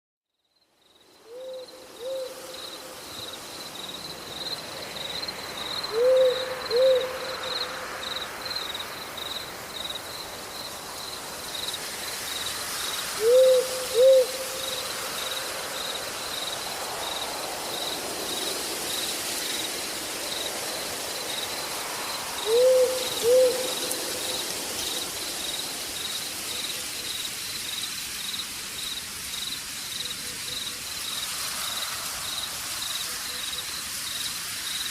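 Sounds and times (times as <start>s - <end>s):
crickets chirping: 0.3s - 34.9s
owl hooting: 1.2s - 2.5s, 5.9s - 7.3s, 13.2s - 14.8s, 22.4s - 23.9s.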